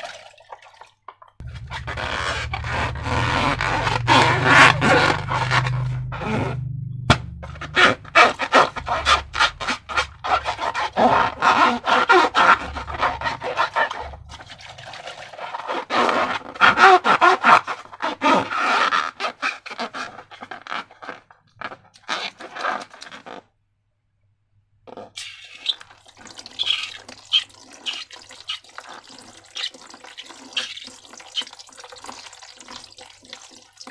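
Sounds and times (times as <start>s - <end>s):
slime squelching and crackling: 1.4s - 6.4s, 7.3s - 17.6s.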